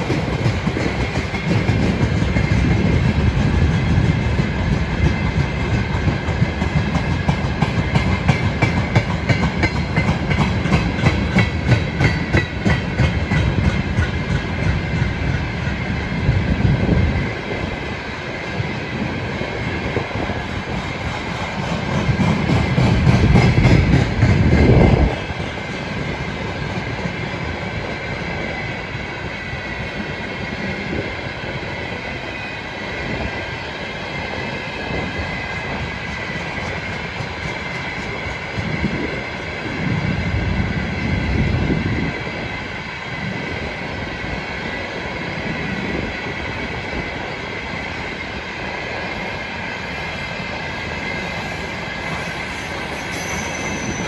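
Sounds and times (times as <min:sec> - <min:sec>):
clickety-clack over rail joints: 0:00.0 - 0:54.0
train wheels rumbling on rail: 0:00.0 - 0:54.0
high-pitched wheel squeal: 0:50.8 - 0:54.0.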